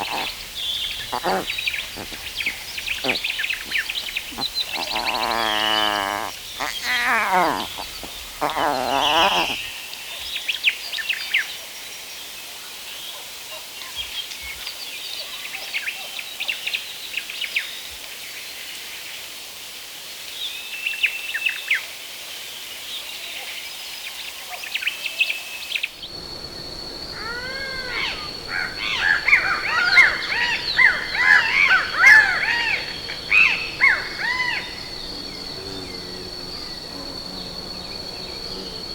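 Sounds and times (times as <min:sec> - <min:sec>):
animal wavering calls: 0:00.0 - 0:09.6, 0:27.1 - 0:38.9
bird chirps: 0:00.0 - 0:09.7, 0:26.1 - 0:38.9
chorus of arching bird calls: 0:00.0 - 0:09.7, 0:26.2 - 0:38.9
high insect drone: 0:00.0 - 0:10.0, 0:26.0 - 0:38.9
steady hiss: 0:00.0 - 0:15.1, 0:26.0 - 0:38.9.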